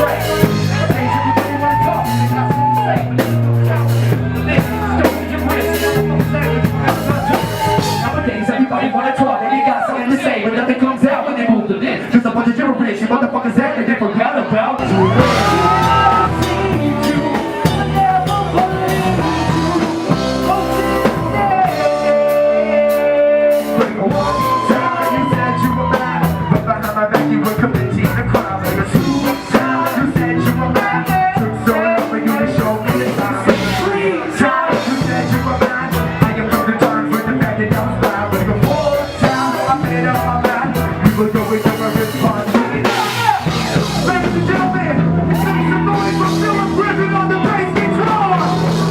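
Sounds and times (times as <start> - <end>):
rock music with drums and guitar: 0.0 - 8.2, 14.8 - 48.9
person singing: 14.8 - 48.9.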